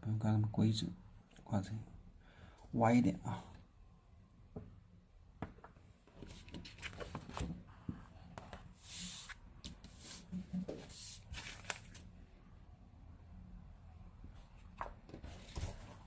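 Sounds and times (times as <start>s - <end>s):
paper rustling and sliding: 6.2s - 7.6s, 8.5s - 12.1s, 14.8s - 16.0s.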